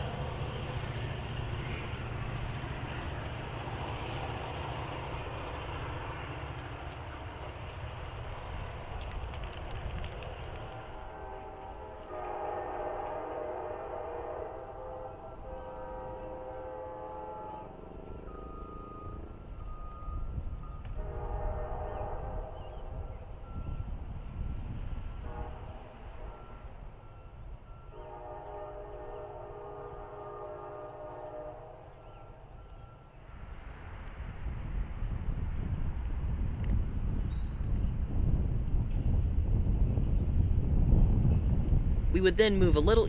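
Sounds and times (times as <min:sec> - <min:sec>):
train rumbling past: 0:00.0 - 0:32.0
locomotive air horn blasts: 0:11.1 - 0:17.7, 0:21.0 - 0:22.6, 0:25.2 - 0:26.4, 0:27.9 - 0:31.8.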